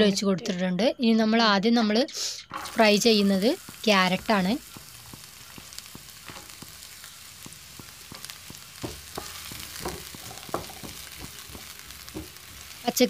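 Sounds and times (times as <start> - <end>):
spatula scraping pan: 2.5 - 12.9
carrots sizzling in oil: 2.5 - 13.0.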